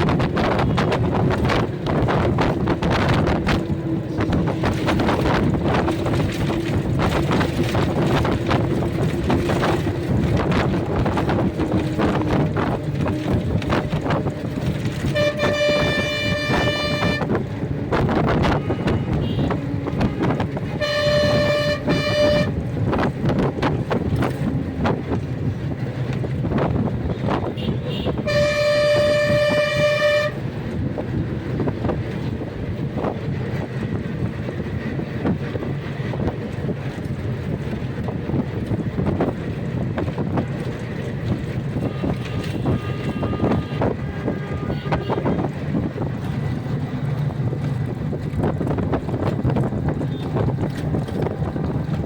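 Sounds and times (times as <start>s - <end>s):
horn sounding steady note: 11.1s - 17.4s, 18.4s - 22.6s, 27.6s - 30.4s, 41.8s - 45.5s
faint horn toots: 14.7s - 17.4s, 18.4s - 22.6s, 27.2s - 30.4s, 41.8s - 45.5s.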